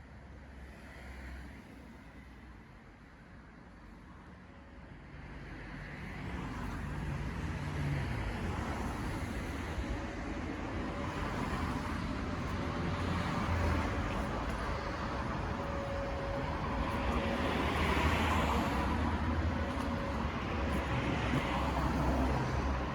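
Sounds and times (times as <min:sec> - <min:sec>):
vehicle road noise rumble: 0:04.7 - 0:22.9.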